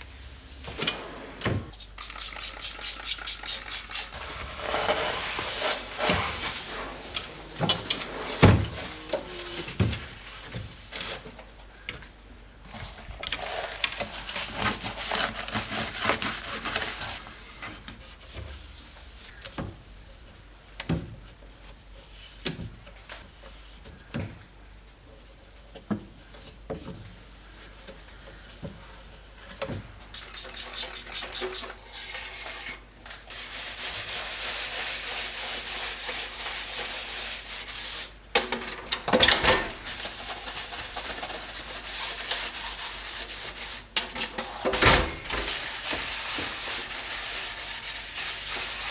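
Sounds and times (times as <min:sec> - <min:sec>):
rubbing and rustling: 0:02.6 - 0:11.6, 0:39.8 - 0:48.9.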